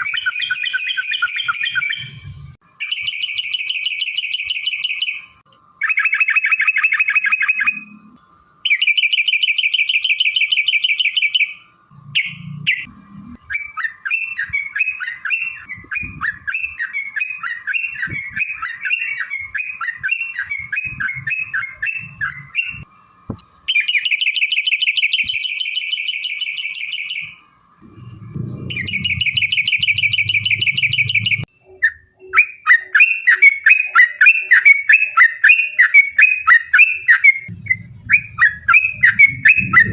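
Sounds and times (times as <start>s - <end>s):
bird singing fast trills: 0.0s - 8.0s, 8.6s - 22.9s, 23.7s - 27.4s, 28.6s - 39.9s
bird chattering: 12.2s - 22.8s, 28.6s - 39.9s.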